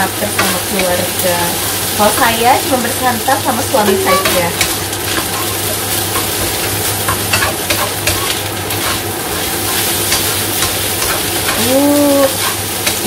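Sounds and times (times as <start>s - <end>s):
rice sizzling in a wok: 0.0s - 13.0s
spatula scraping and tapping pan: 0.3s - 1.1s, 3.8s - 13.0s.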